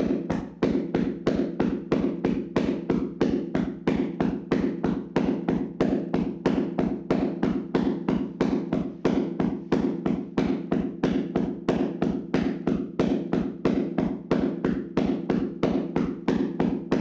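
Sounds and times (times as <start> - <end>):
hands slapping on body: 0.0 - 17.0.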